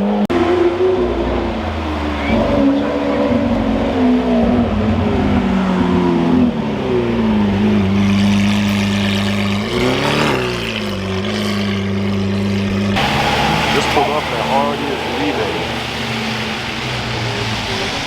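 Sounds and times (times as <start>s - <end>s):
engine rev blip: 0.3s - 6.5s
car engine running: 0.3s - 18.0s.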